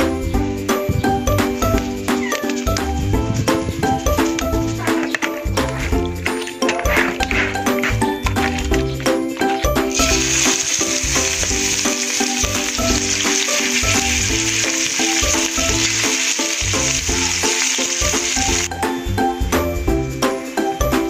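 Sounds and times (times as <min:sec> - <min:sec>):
background music: 0:00.0 - 0:21.0
beef sizzling in a frying pan: 0:09.9 - 0:18.7.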